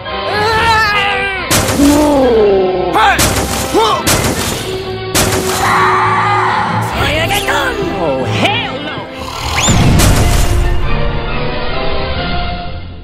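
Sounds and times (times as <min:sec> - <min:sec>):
action soundtrack with wordless vocals: 0:00.0 - 0:13.0
sharp booming impacts: 0:01.5 - 0:02.0, 0:03.1 - 0:05.8, 0:09.6 - 0:11.1.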